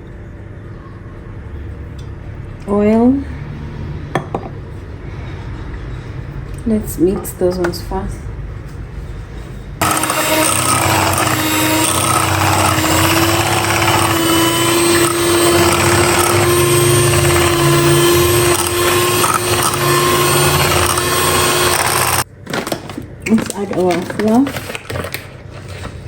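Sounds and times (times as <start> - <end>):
electric mixer motor whine: 9.8 - 22.2.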